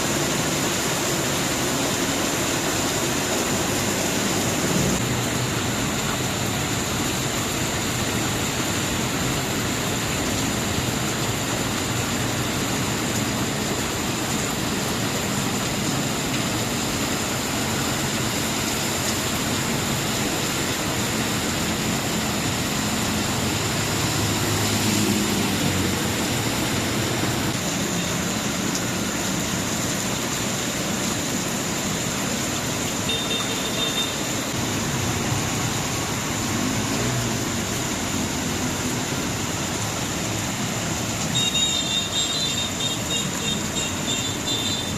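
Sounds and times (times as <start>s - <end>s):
heavy rain pouring: 0.0s - 44.9s
vehicle engine passing: 22.8s - 27.5s.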